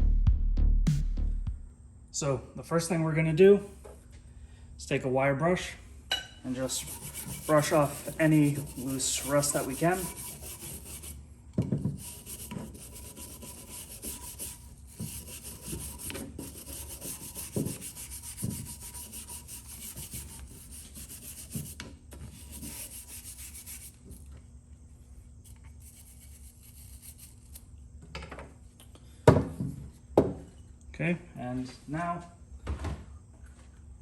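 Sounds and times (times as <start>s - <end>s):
wire brush scrubbing metal: 6.6s - 11.2s, 12.0s - 24.0s, 25.8s - 27.6s.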